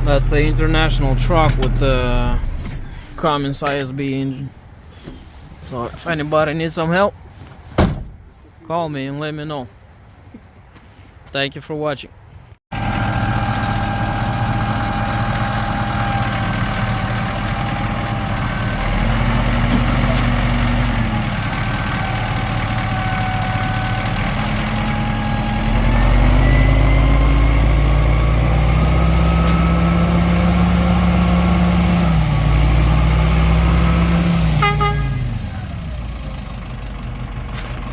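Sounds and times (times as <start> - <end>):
diesel truck engine revving: 0.0 - 4.5, 12.7 - 37.9.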